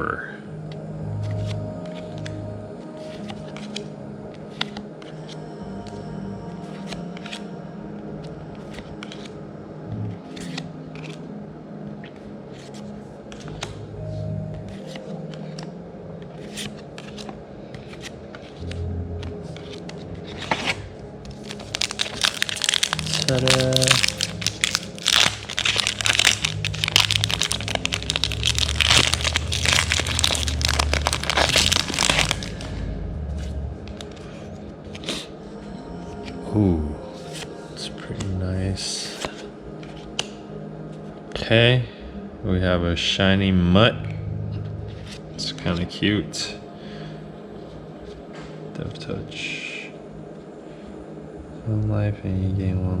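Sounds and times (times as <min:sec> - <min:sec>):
soft rustling of cards: 0:03.0 - 0:05.3, 0:08.2 - 0:09.4, 0:12.0 - 0:35.3, 0:39.0 - 0:40.4
cards clicking and snapping: 0:08.7 - 0:09.3, 0:10.4 - 0:11.2, 0:13.3 - 0:13.8, 0:16.4 - 0:32.8, 0:39.2 - 0:40.4
foil wrapper crinkling: 0:20.4 - 0:32.8.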